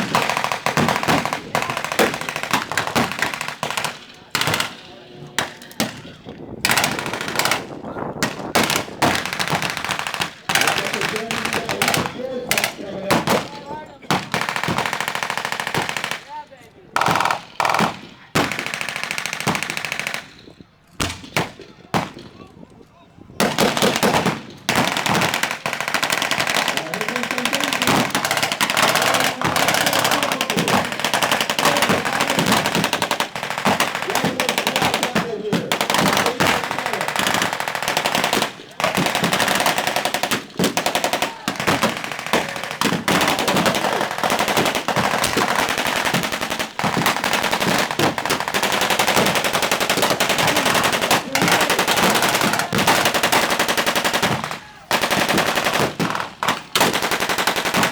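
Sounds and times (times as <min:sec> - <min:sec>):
machine gun and rifle fire: 0:00.0 - 0:06.1, 0:14.1 - 0:16.3, 0:17.0 - 0:20.4, 0:23.4 - 0:57.9.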